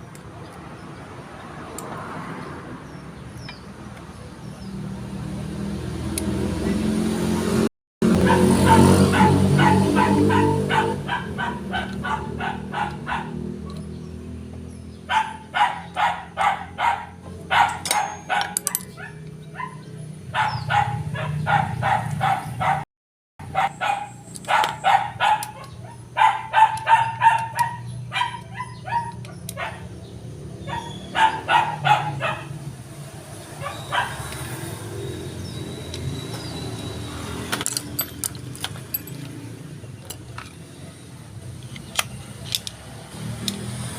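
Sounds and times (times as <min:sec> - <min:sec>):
dog barking: 0:08.2 - 0:13.4, 0:15.1 - 0:22.8, 0:23.4 - 0:30.0, 0:30.6 - 0:32.6, 0:33.6 - 0:34.3.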